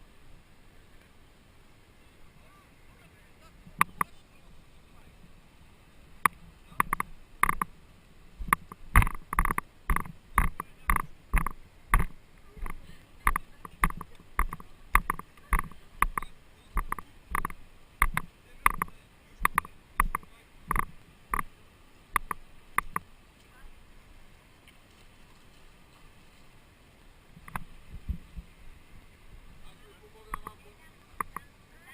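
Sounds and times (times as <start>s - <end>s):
kayak paddle strokes splashing: 0.0s - 31.9s.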